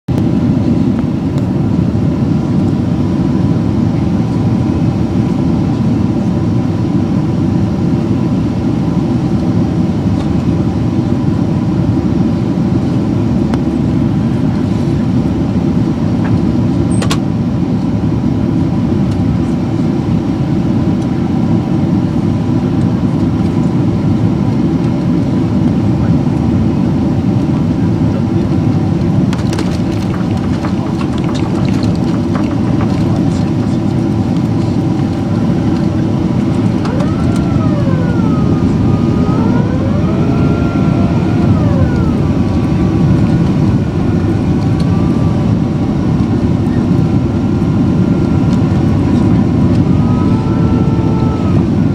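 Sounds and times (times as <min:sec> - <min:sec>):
airplane cabin roar: 0:00.1 - 0:51.9
small click: 0:16.9 - 0:17.2.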